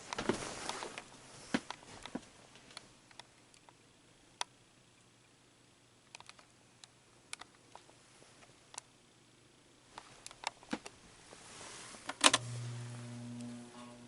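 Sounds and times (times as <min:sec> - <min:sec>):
faint low hum: 0:00.0 - 0:14.0
soft clicks and ticks: 0:06.0 - 0:08.9.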